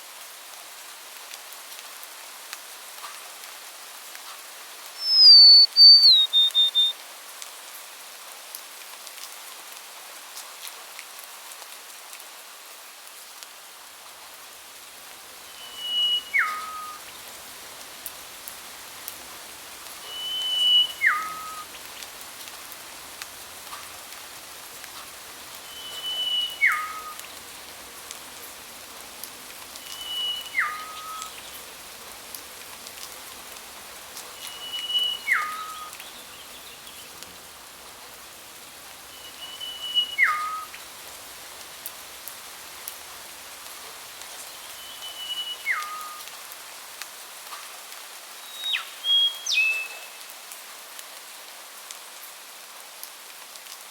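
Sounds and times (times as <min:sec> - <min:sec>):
steady hiss with faint ticks: 0:00.0 - 0:53.9
bird whistled call: 0:05.0 - 0:07.0, 0:15.5 - 0:17.1, 0:20.0 - 0:21.7, 0:25.6 - 0:27.3, 0:29.8 - 0:31.4, 0:34.4 - 0:36.1, 0:39.1 - 0:40.8, 0:44.6 - 0:46.2, 0:48.4 - 0:50.2.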